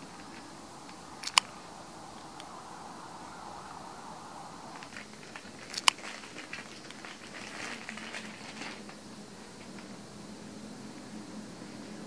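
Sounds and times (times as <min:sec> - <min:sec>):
sharp click: 0:00.9 - 0:01.5
plastic wrapping crinkling: 0:04.6 - 0:09.0.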